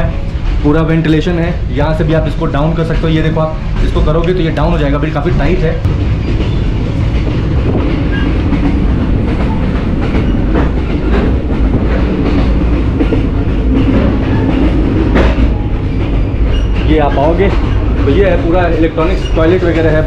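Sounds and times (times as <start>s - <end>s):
train heavy rumble: 0.0s - 20.0s
wheel-and-rail clatter: 0.1s - 20.0s
sharp knocks: 5.3s - 16.9s.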